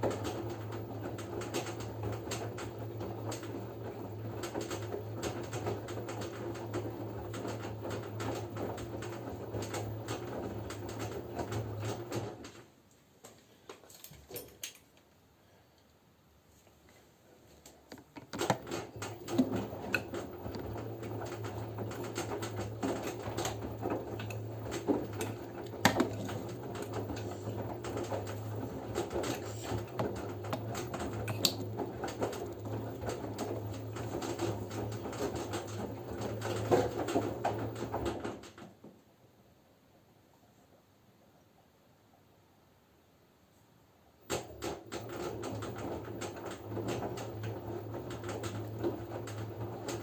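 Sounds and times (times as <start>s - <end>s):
washing machine motor hum: 0.0s - 12.6s, 17.9s - 38.6s, 44.2s - 50.0s
wet laundry tumbling: 0.0s - 12.6s, 18.0s - 38.6s, 44.4s - 50.0s.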